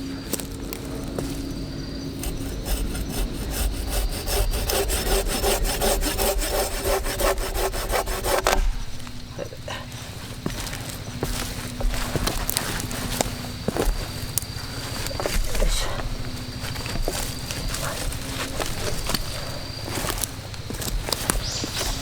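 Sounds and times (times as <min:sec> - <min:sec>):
hand saw cutting wood: 0:02.1 - 0:09.0.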